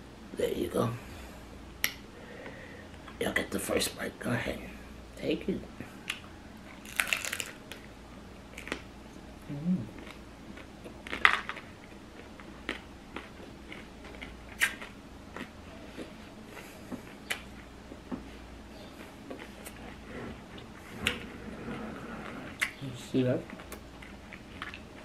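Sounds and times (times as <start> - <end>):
chewing crunchy food: 6.7 - 7.8, 9.9 - 17.7, 18.8 - 22.8, 23.4 - 25.0.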